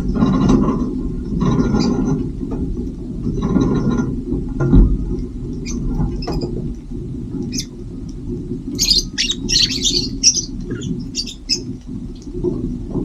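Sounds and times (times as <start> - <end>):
steady low rumble: 0.0 - 13.0
small birds chirping: 1.2 - 2.2, 5.1 - 12.9.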